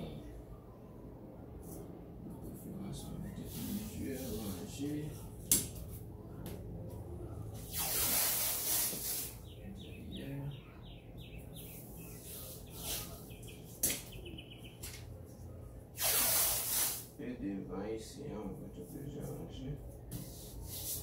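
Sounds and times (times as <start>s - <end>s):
bird chirping: 9.2s - 15.0s.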